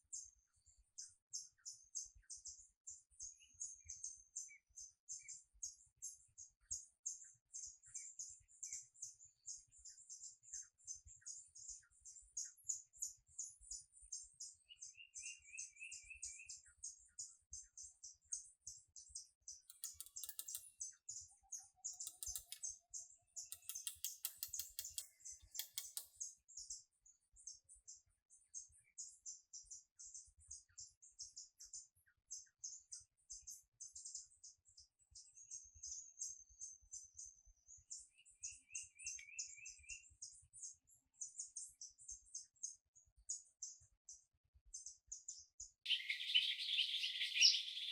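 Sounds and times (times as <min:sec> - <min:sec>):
birds chirping: 0:19.5 - 0:26.8, 0:45.9 - 0:47.9
bird trill: 0:19.7 - 0:26.3, 0:45.9 - 0:47.9.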